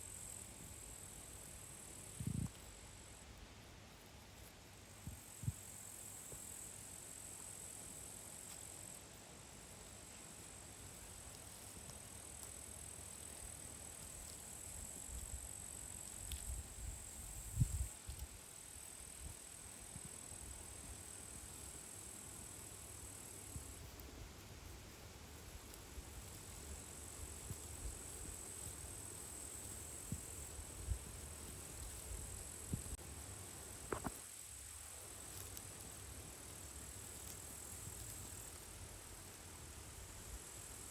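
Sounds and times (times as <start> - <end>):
crickets trilling: 4.8 - 40.9.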